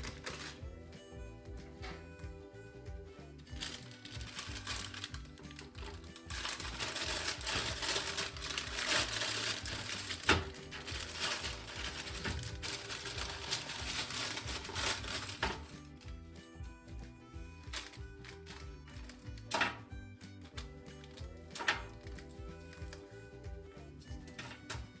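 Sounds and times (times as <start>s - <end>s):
crinkling and rustling: 0.0s - 0.6s, 3.4s - 16.1s, 17.6s - 23.1s, 24.2s - 25.0s
soft background music: 0.0s - 25.0s.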